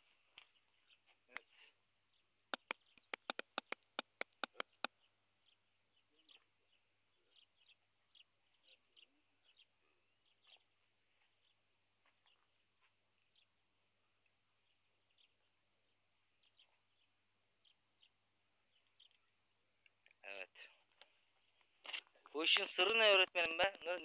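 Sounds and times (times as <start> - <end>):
faint bird chirps: 0.0 - 22.4
rapid sharp clicks: 2.5 - 4.9.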